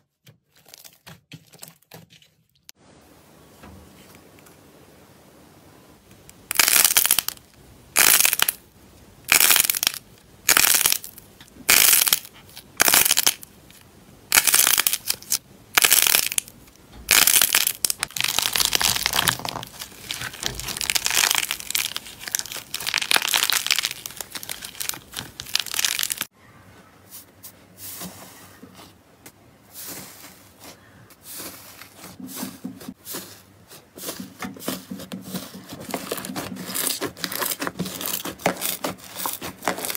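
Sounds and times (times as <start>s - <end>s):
slime squeezed crackling: 6.5s - 7.4s, 8.0s - 8.6s, 9.3s - 13.4s, 14.3s - 16.5s, 17.1s - 26.3s, 36.0s - 39.9s.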